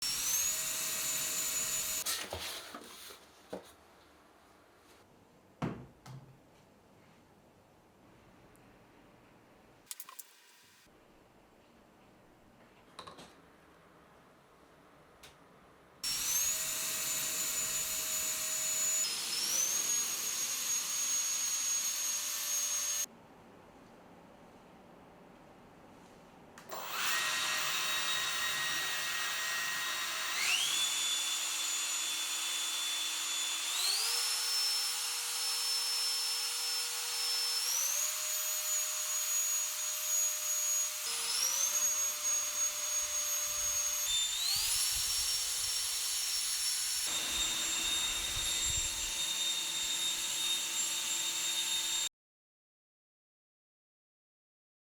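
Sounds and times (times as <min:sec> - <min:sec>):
electric blower motor whine: 0:47.0 - 0:50.4.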